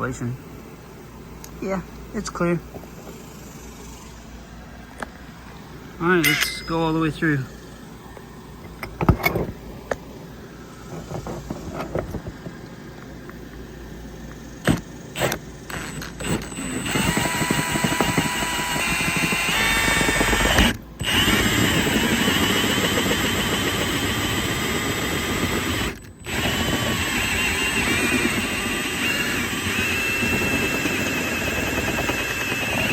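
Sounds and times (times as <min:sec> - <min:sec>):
power drill whining under load: 0:14.6 - 0:32.9.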